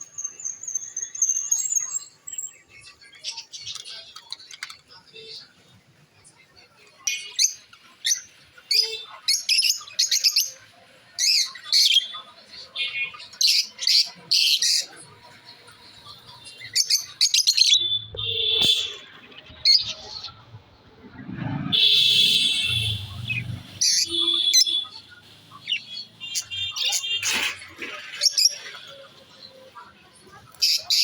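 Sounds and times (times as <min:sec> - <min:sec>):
parrots chirping: 0:21.8 - 0:27.2.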